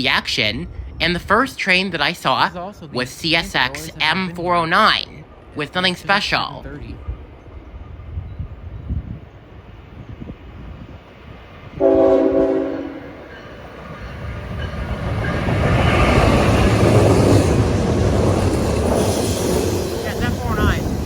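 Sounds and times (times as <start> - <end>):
train rumbling on rails: 0.0 - 21.0
locomotive horn blast: 11.8 - 13.2.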